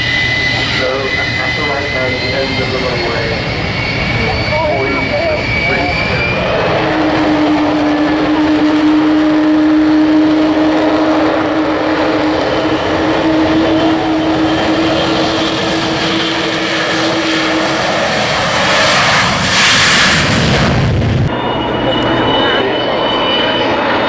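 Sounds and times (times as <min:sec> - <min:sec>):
rush of jet noise: 0:00.0 - 0:23.6
jet engine whine: 0:00.0 - 0:24.0.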